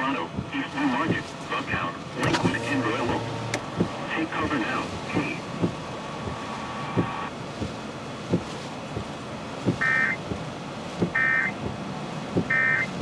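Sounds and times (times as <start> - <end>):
short electronic beeps: 9.8 - 10.2, 11.2 - 11.6, 12.5 - 13.0.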